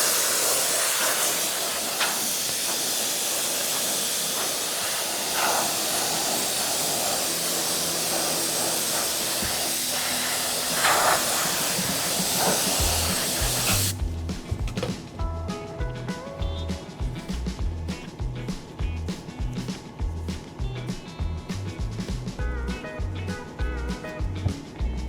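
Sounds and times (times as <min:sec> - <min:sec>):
adhesive spray hissing: 0:00.0 - 0:14.0
background music: 0:12.7 - 0:25.0.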